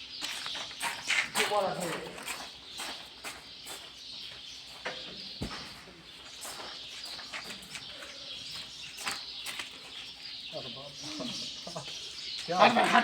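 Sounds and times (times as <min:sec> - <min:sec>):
small birds chirping: 0:00.0 - 0:13.0
low thump: 0:05.4 - 0:05.8.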